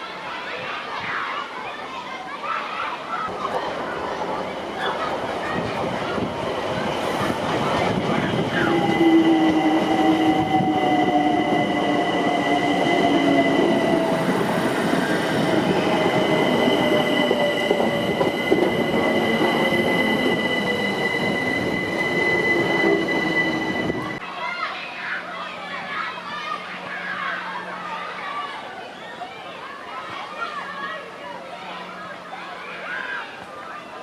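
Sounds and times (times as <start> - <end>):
train rumbling on rails: 3.3 - 24.2
high-pitched wheel squeal: 15.9 - 24.2.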